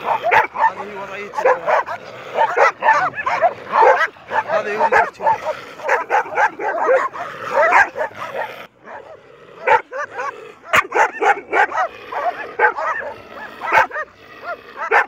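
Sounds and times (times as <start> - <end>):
dogs barking and yelping: 0.0 - 15.0.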